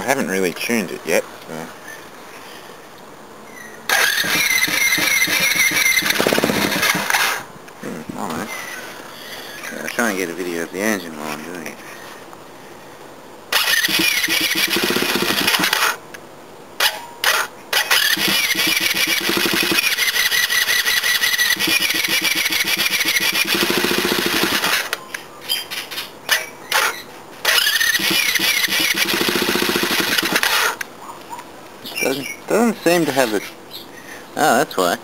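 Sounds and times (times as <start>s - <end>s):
small engine cranking on starter: 3.9s - 7.4s, 13.5s - 16.0s, 17.2s - 24.9s, 26.7s - 30.8s.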